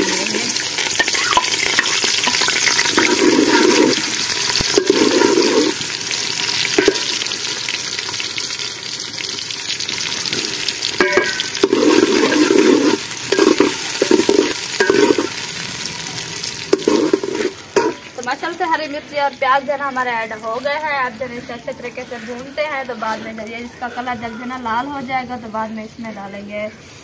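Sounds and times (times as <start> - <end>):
onions sizzling in hot fat: 0.0 - 23.5
chillies clattering into pot: 9.0 - 15.6.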